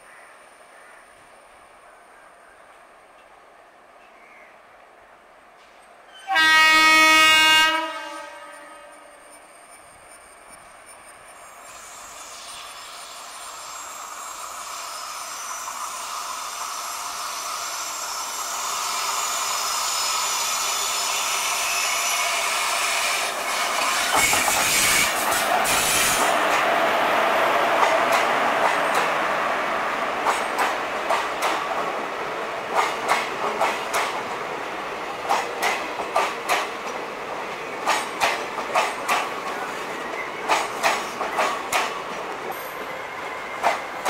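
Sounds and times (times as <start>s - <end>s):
train passing: 0.0s - 44.0s
wheels clicking over rail joints: 35.2s - 44.0s.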